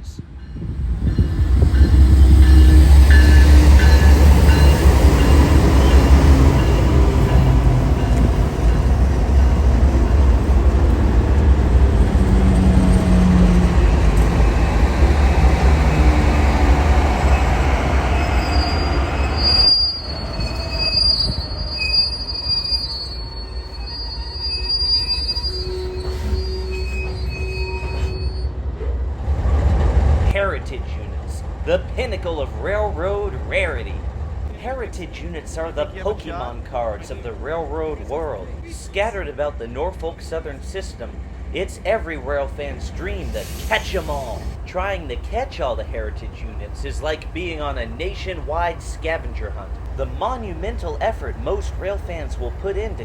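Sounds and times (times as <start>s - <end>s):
freight train rumbling past: 0.0s - 53.0s
wheel flanges squealing on rail: 0.4s - 28.9s, 42.9s - 53.0s.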